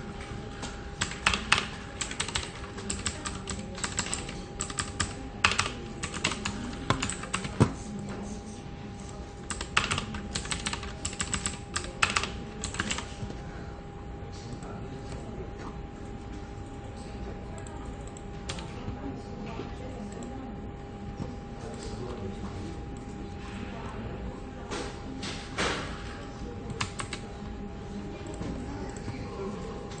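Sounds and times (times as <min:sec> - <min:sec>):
typing on computer keyboard: 0:00.6 - 0:07.8, 0:09.4 - 0:13.2, 0:26.7 - 0:27.3.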